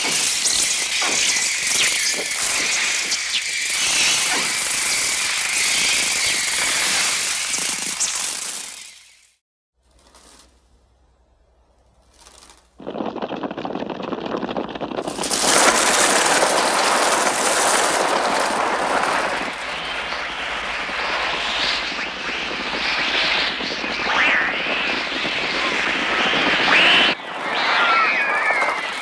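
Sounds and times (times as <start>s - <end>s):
synthesized fluttering wings: 0.0s - 10.8s, 11.9s - 29.0s
shrill synthesized cries: 26.7s - 29.0s.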